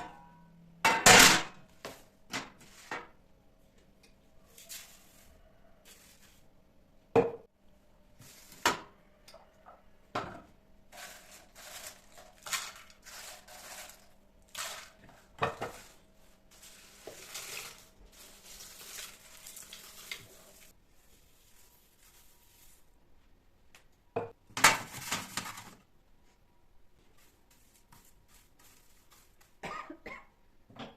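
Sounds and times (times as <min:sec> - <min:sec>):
scraping and rustling: 0:10.9 - 0:22.9.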